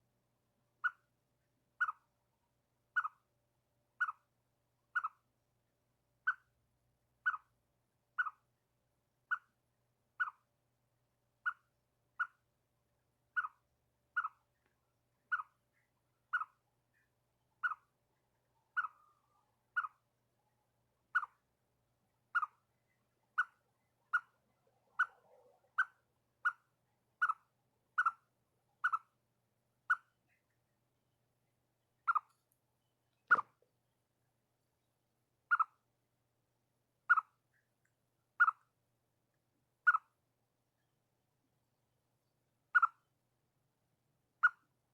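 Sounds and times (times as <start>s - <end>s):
chipmunk alarm chirps: 0.8s - 1.0s, 1.8s - 2.0s, 3.0s - 3.2s, 4.0s - 4.2s, 5.0s - 5.2s, 6.3s - 6.5s, 7.2s - 7.5s, 8.2s - 8.4s, 9.3s - 9.5s, 10.2s - 10.4s, 11.4s - 12.4s, 13.4s - 14.5s, 15.2s - 15.6s, 16.3s - 16.6s, 17.6s - 17.9s, 18.6s - 20.0s, 21.1s - 21.4s, 22.3s - 29.2s, 29.9s - 30.2s, 32.0s - 32.3s, 35.5s - 35.8s, 37.1s - 37.4s, 38.4s - 38.6s, 39.8s - 40.1s, 42.7s - 43.0s, 44.4s - 44.7s.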